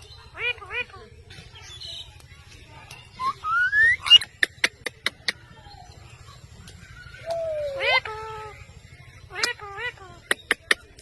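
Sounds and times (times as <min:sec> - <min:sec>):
parrot whistling: 0:03.2 - 0:04.2.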